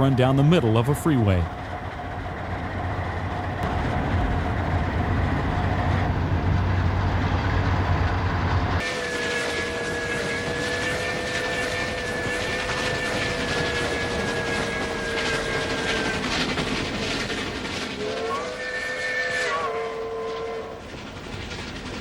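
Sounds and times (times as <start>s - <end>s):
steam locomotive rumbling: 0.0s - 22.0s
locomotive chime whistle: 18.0s - 20.8s.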